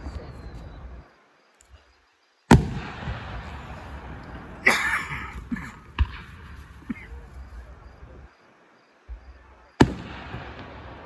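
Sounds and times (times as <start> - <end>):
hissing crackle: 0.0 - 11.0
firework bang: 2.5 - 8.2, 9.1 - 11.0.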